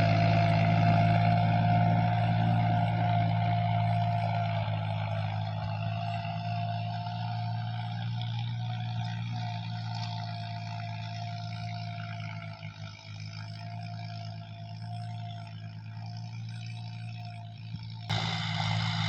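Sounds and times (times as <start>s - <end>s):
tractor diesel engine running: 0.0s - 19.0s
high whine: 18.1s - 19.0s.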